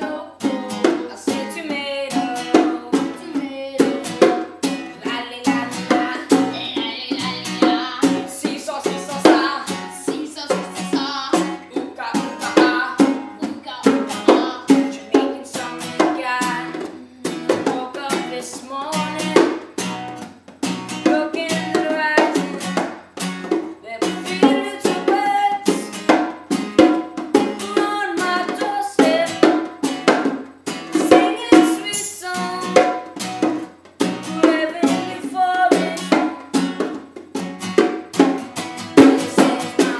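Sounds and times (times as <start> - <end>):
person singing: 0.0 - 19.6, 23.8 - 25.9, 27.4 - 29.5, 31.0 - 33.0, 34.3 - 36.3, 39.0 - 39.9
ukulele strumming: 0.0 - 39.9.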